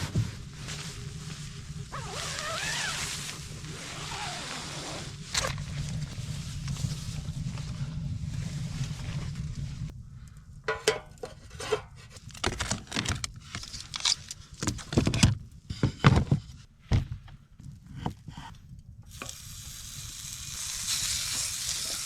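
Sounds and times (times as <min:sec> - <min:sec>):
rushing wind: 0:00.0 - 0:10.6
camp cookware clinking: 0:10.7 - 0:13.0.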